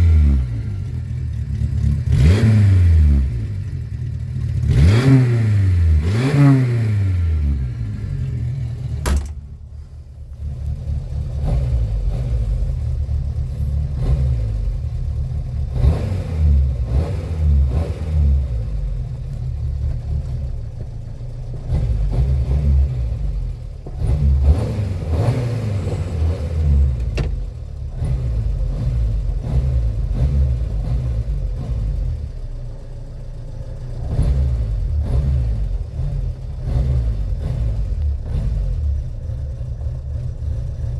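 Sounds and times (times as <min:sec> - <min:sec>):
car engine revving: 0:00.0 - 0:40.9
sharp click: 0:09.0 - 0:09.4.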